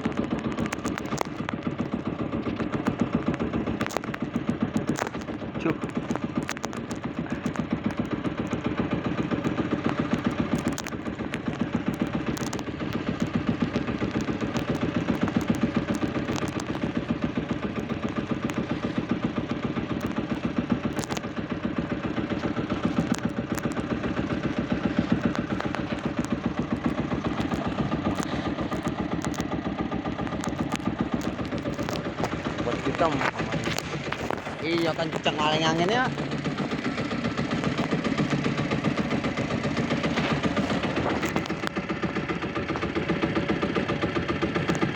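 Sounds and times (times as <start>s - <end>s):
boat engine chugging: 0.0s - 44.9s.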